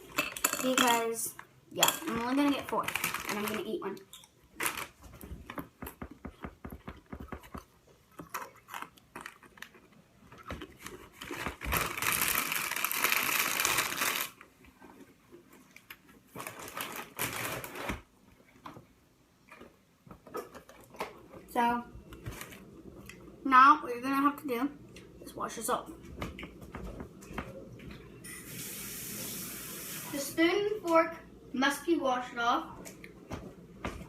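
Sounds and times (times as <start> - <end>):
plastic bag crinkling: 1.8 - 3.9, 4.5 - 5.5, 8.2 - 14.5, 15.6 - 18.1.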